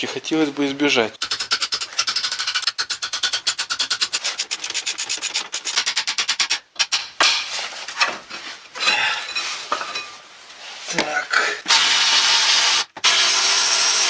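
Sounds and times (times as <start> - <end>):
irregular scraping: 7.4 - 11.7.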